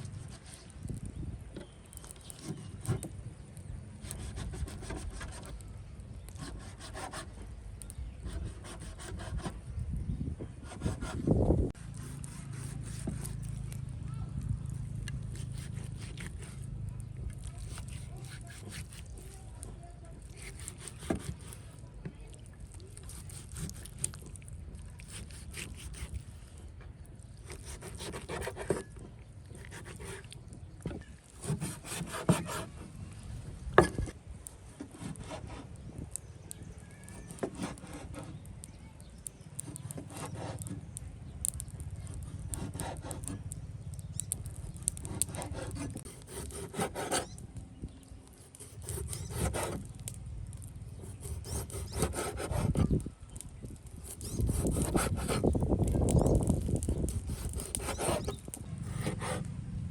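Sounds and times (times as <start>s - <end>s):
scraping and rubbing strokes: 0.0s - 1.0s, 4.0s - 5.6s, 8.2s - 9.6s, 10.6s - 13.9s, 15.0s - 21.8s, 22.8s - 26.6s, 27.4s - 36.2s, 37.1s - 38.5s, 39.6s - 47.4s, 48.2s - 59.5s.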